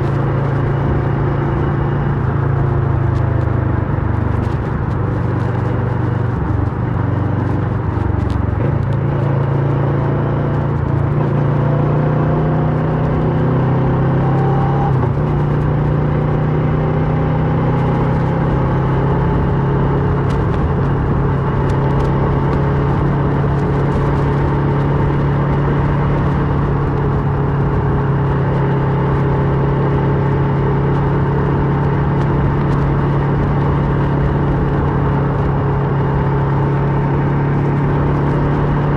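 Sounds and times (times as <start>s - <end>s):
motorcycle engine riding: 0.0s - 38.9s.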